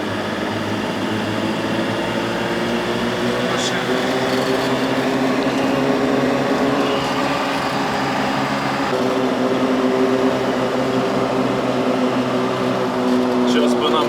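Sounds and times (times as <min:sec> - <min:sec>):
road and drivetrain noise: 0:00.0 - 0:14.0
vehicle engine running under load: 0:00.0 - 0:14.0.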